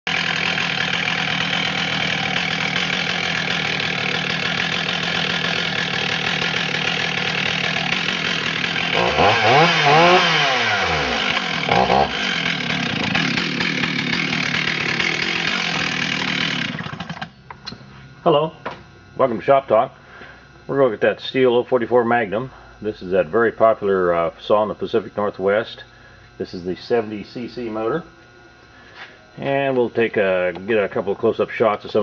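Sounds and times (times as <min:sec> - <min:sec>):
chainsaw running and revving: 0:00.1 - 0:17.3.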